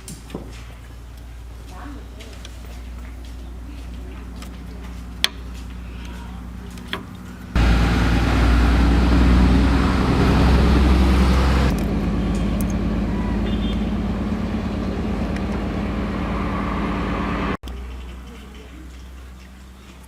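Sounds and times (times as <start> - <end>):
tractor engine running: 2.4 - 18.6.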